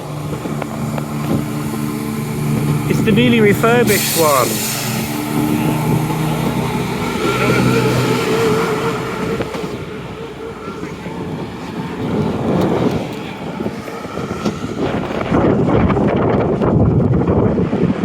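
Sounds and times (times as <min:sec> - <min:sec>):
diesel engines droning: 0:00.0 - 0:17.8
moving train rumbling: 0:00.0 - 0:18.0.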